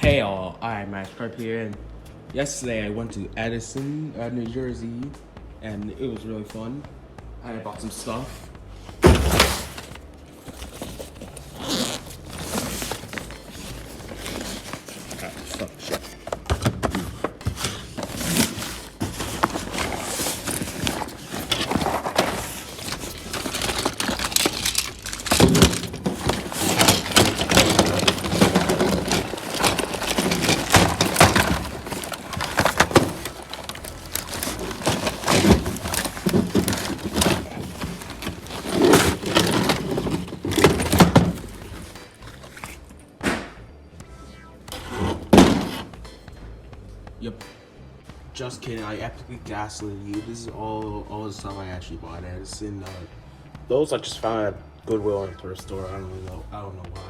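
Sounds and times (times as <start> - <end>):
hard objects clattering: 8.1 - 43.0, 44.8 - 46.2.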